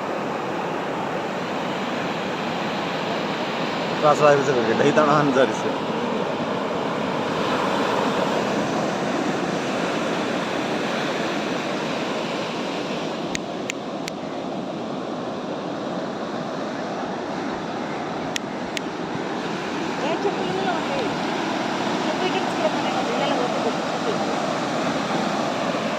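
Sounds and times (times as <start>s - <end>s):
surf breaking on beach: 0.0s - 25.9s.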